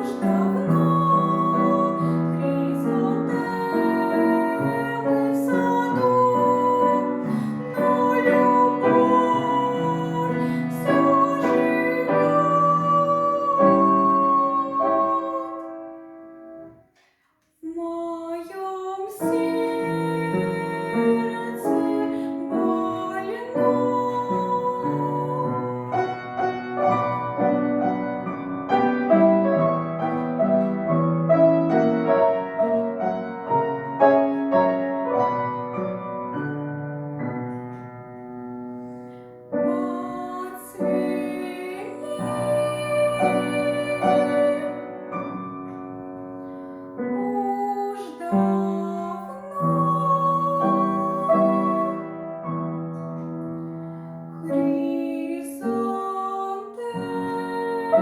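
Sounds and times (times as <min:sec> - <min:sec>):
woman singing: 0:00.0 - 0:16.2, 0:17.6 - 0:28.3, 0:39.5 - 0:45.4, 0:47.0 - 0:53.0, 0:54.4 - 0:58.0
piano: 0:00.0 - 0:58.0.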